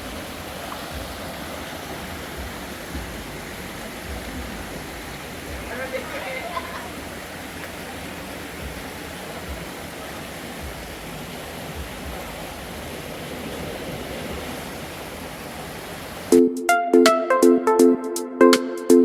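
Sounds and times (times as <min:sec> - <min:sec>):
rushing running water: 0:00.0 - 0:16.4.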